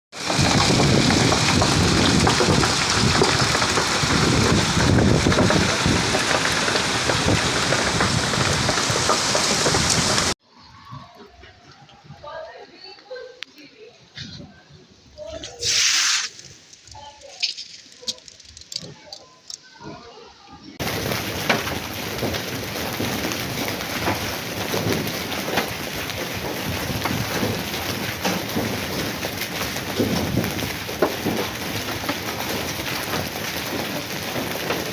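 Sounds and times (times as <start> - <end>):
heavy rain pouring: 0.1 - 10.4, 20.7 - 34.9.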